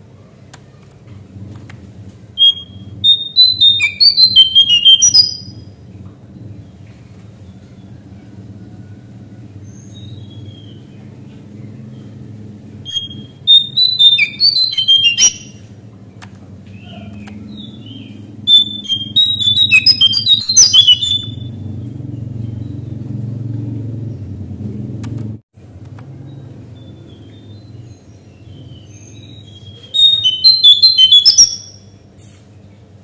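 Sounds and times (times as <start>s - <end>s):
bird singing high tumbling notes: 2.4s - 5.7s, 12.8s - 15.7s, 16.7s - 23.4s, 26.8s - 32.0s
soft bird calls: 16.6s - 21.6s.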